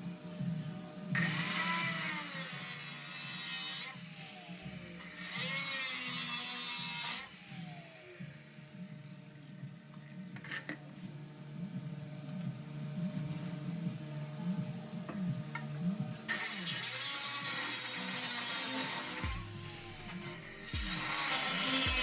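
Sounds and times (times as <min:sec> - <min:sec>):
power tool cutting sheet metal: 0:01.2 - 0:10.8, 0:16.3 - 0:22.0.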